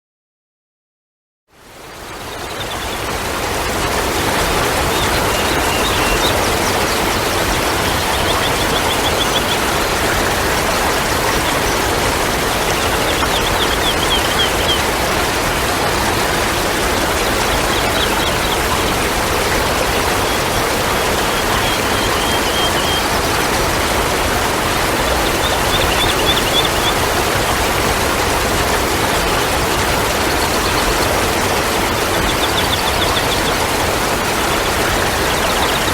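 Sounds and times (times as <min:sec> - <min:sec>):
running water rushing: 0:01.6 - 0:35.9
faint high bird trill: 0:04.9 - 0:10.2, 0:21.2 - 0:23.1.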